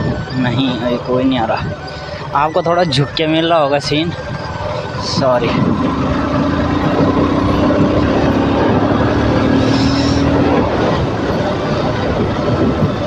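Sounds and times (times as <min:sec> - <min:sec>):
wind and tyre noise: 0:00.0 - 0:13.0
motorcycle engine running: 0:04.2 - 0:13.0.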